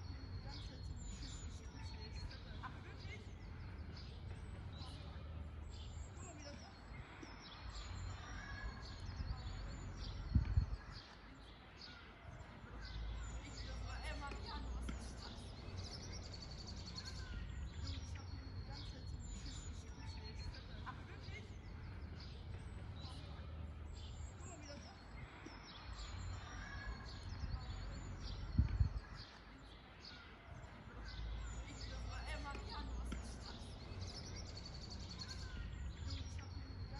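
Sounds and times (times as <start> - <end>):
birds chirping and calling: 0.0 - 36.9
dull low thumps: 9.0 - 10.9, 27.3 - 29.2.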